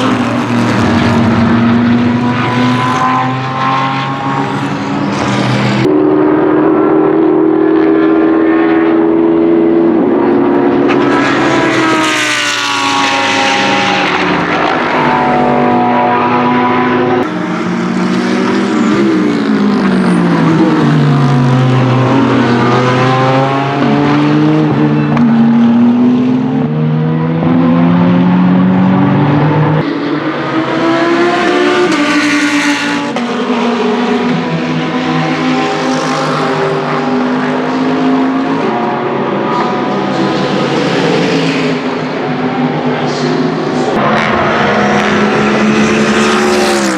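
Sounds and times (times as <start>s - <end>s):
racing car engine passing: 0.0s - 46.9s.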